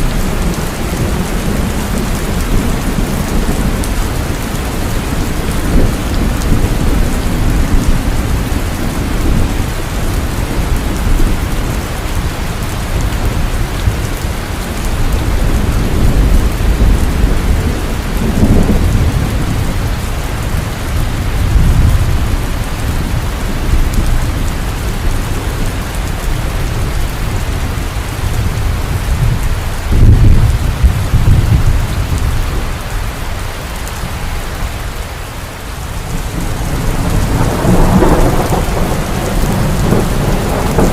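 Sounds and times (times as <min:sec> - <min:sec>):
heavy rain falling: 0:00.0 - 0:40.9
distant thunder rumbling: 0:36.0 - 0:40.9.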